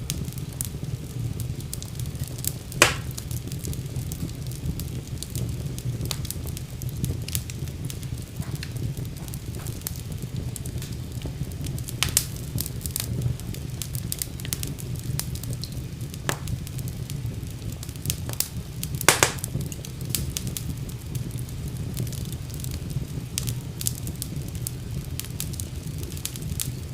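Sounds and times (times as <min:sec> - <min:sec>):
fire pops and crackles: 0:00.0 - 0:26.9
low rumble of flames: 0:00.0 - 0:26.9.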